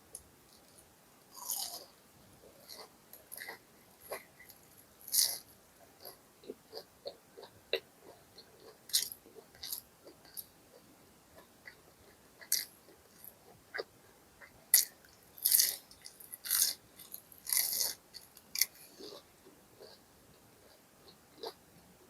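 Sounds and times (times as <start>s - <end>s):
crunchy bites and chewing: 1.3s - 1.9s, 2.5s - 10.5s, 14.7s - 20.0s.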